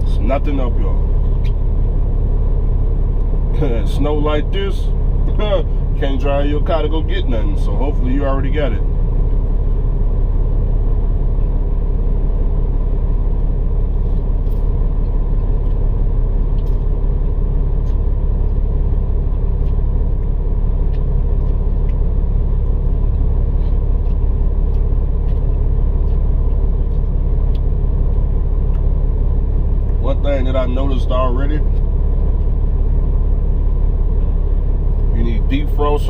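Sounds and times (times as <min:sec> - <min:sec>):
truck diesel engine running: 0:00.0 - 0:36.0.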